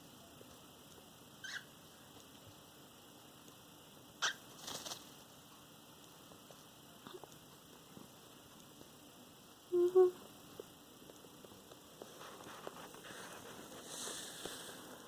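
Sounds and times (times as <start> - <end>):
scratchy rustle: 12.0 - 15.0.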